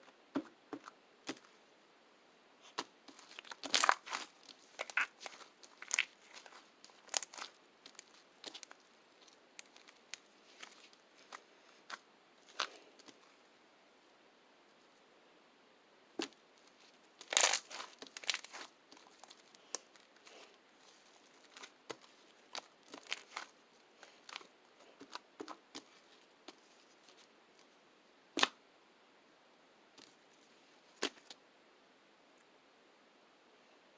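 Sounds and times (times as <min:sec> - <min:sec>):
crackling handling noises: 0:02.6 - 0:13.4, 0:16.2 - 0:27.8, 0:30.0 - 0:31.4.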